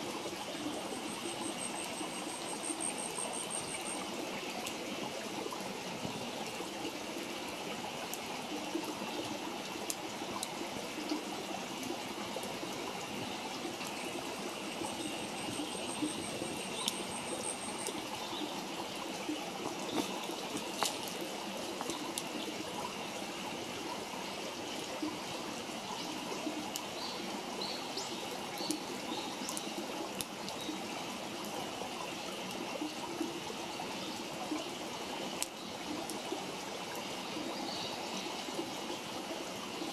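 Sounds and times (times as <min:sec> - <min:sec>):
campfire crackling and popping: 0:19.6 - 0:22.3.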